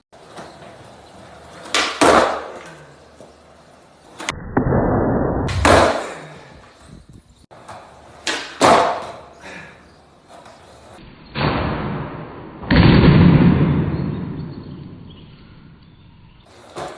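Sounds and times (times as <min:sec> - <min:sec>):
skateboard landing: 0:00.2 - 0:03.4, 0:04.1 - 0:06.8, 0:07.5 - 0:09.4, 0:16.6 - 0:16.9
skateboard wheels rolling on pavement: 0:00.2 - 0:04.3, 0:05.5 - 0:11.0, 0:16.4 - 0:16.9
skateboard tail popping: 0:01.6 - 0:03.3, 0:05.5 - 0:06.3, 0:07.6 - 0:09.3.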